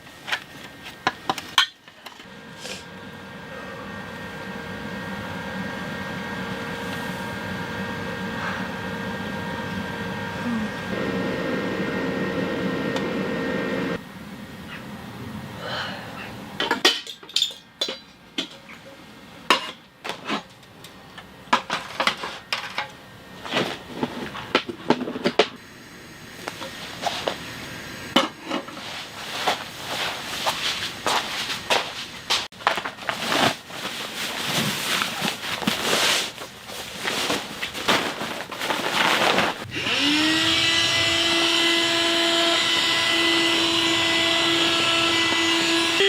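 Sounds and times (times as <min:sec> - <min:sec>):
pots and utensils clinking: 0:16.6 - 0:20.6.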